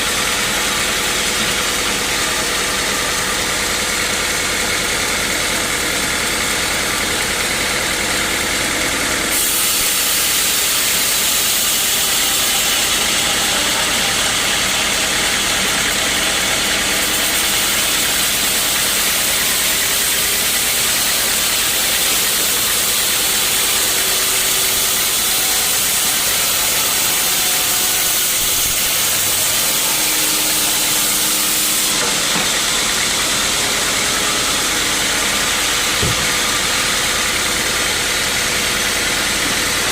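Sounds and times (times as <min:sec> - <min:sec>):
sawmill engine running: 0:00.0 - 0:39.9
hiss: 0:09.3 - 0:13.0, 0:17.0 - 0:32.1.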